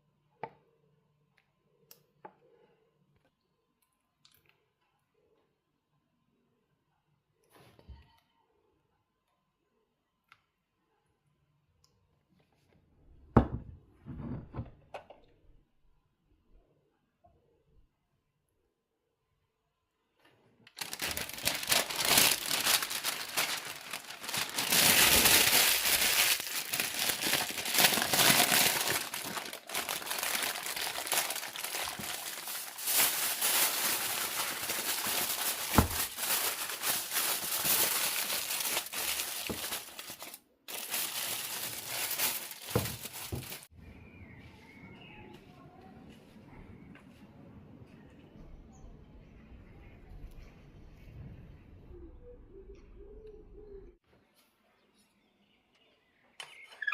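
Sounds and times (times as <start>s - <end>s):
crinkling and rustling: 20.2s - 43.7s.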